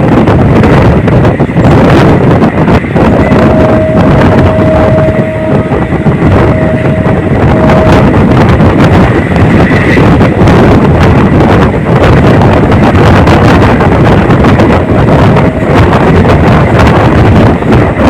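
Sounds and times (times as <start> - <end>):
passenger train rumbling: 0.0 - 18.0
wind on microphone: 0.0 - 18.0
steady single tone: 3.1 - 8.6.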